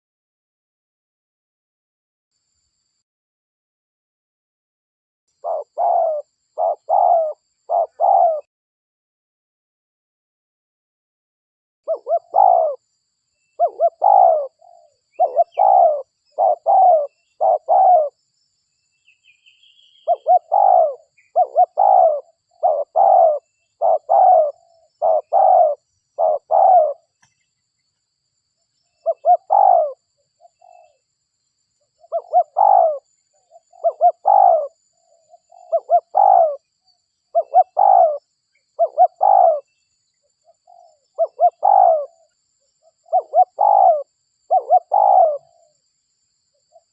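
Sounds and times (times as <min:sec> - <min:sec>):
dove cooing: 0:05.4 - 0:08.5, 0:11.9 - 0:12.8, 0:13.6 - 0:18.2, 0:19.9 - 0:27.2, 0:29.0 - 0:31.0, 0:32.0 - 0:36.7, 0:37.3 - 0:39.7, 0:40.5 - 0:45.7.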